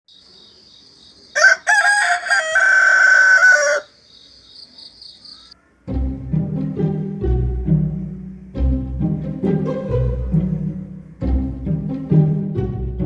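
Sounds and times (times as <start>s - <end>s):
insects chirring: 0.1s - 5.6s
rooster crowing: 1.3s - 4.0s.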